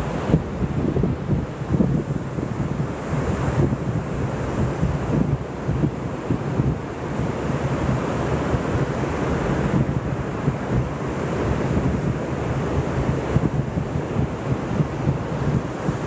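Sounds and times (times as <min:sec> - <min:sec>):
ocean surf on beach: 0:00.0 - 0:16.0
wind buffeting microphone: 0:00.0 - 0:16.0.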